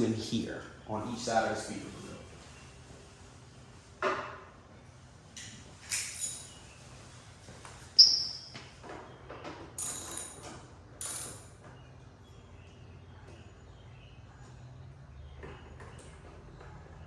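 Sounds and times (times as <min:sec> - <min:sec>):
small tools clicking and clinking: 0:05.4 - 0:06.8, 0:09.8 - 0:11.7.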